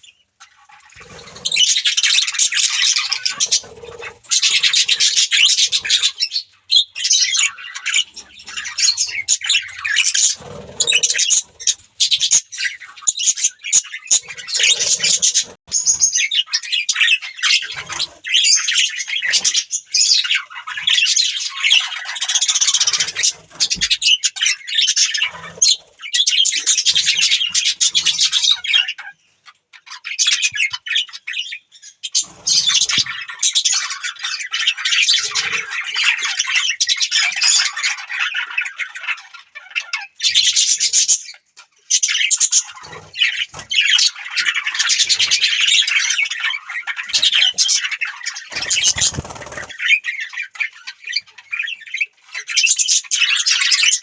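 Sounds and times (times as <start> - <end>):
budgerigars chattering and chirping: 0.0 - 54.0
budgerigar squawks: 1.0 - 29.0, 42.2 - 50.1.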